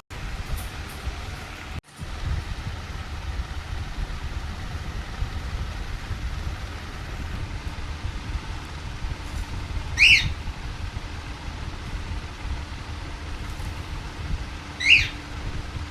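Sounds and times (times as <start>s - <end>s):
parrot call: 10.0s - 10.5s, 14.8s - 15.4s.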